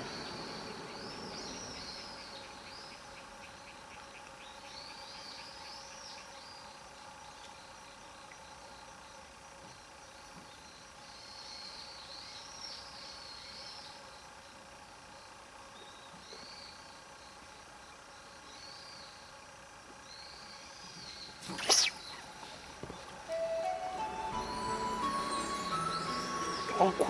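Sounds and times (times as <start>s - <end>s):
faint outdoor background: 0.0s - 27.0s
small bird singing: 0.0s - 27.0s.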